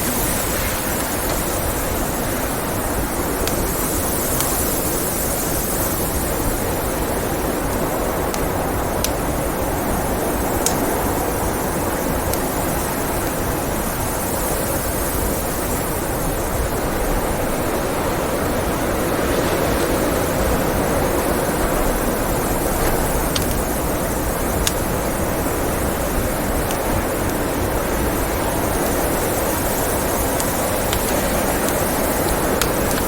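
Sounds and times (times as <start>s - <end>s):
wood fire crackling pops: 0.0s - 5.2s, 7.1s - 14.4s, 21.5s - 33.0s
blizzard wind rushing: 0.0s - 33.0s.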